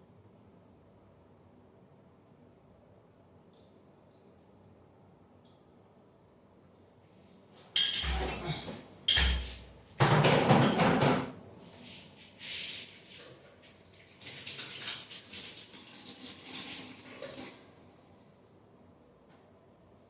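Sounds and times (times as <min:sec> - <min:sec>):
water splashing and pouring: 0:12.6 - 0:17.7.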